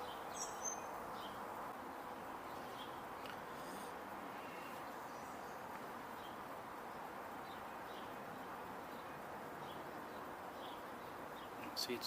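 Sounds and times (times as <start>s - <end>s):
distant bird chirps: 0.0s - 12.0s
outdoor background hiss: 0.0s - 12.0s.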